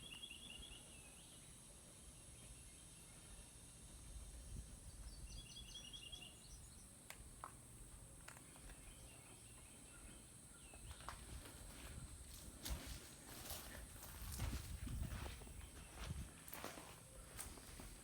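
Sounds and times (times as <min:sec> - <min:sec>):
bird chirping: 0:00.0 - 0:07.0, 0:08.3 - 0:11.3.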